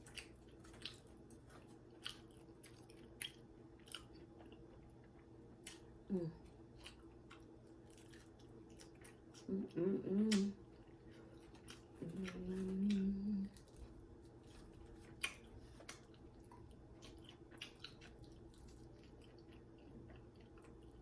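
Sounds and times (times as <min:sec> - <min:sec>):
mouth sounds of chewing: 0:00.0 - 0:21.0
woman humming: 0:06.1 - 0:06.4, 0:09.4 - 0:10.6, 0:12.0 - 0:13.6.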